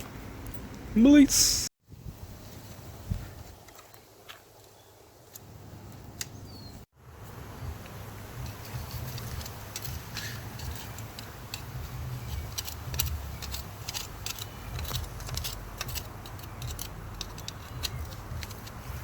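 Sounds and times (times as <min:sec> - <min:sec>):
metallic clicks of hand tools: 0:08.4 - 0:19.0.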